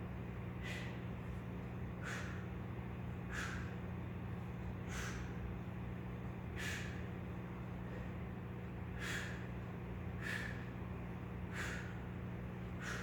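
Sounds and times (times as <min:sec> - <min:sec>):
man breathing out hard: 0:02.0 - 0:02.5, 0:03.3 - 0:03.8, 0:04.9 - 0:05.4, 0:06.5 - 0:07.1, 0:08.9 - 0:10.8, 0:11.4 - 0:13.0.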